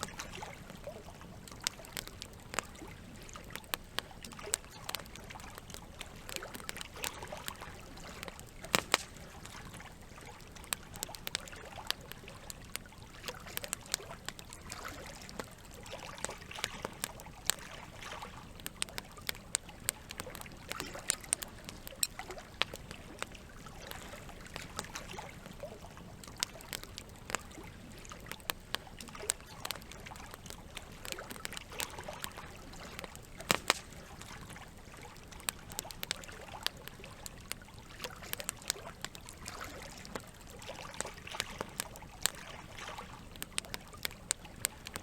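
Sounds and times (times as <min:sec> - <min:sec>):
campfire crackling and popping: 0:00.0 - 0:45.0
water: 0:00.0 - 0:45.0.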